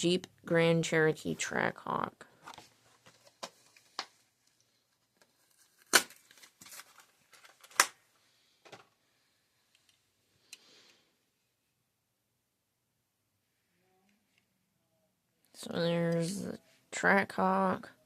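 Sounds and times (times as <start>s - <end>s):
plastic and cardboard crinkling: 2.4s - 8.0s.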